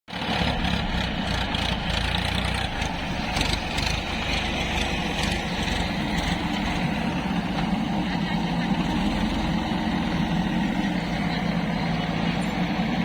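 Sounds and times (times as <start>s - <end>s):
diesel engine running: 0.1s - 13.0s.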